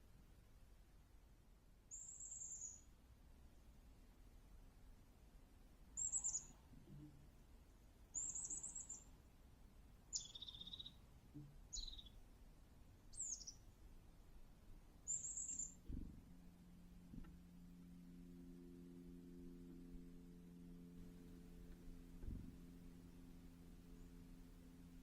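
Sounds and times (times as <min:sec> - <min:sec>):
small birds calling: 0:01.9 - 0:02.9, 0:05.9 - 0:06.7, 0:08.1 - 0:09.2, 0:10.1 - 0:11.1, 0:11.7 - 0:12.2, 0:13.1 - 0:13.8, 0:15.0 - 0:16.0.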